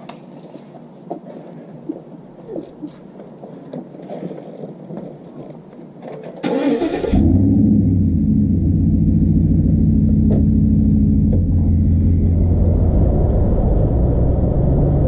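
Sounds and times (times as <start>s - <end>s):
truck engine cranking and idling: 6.4s - 15.0s.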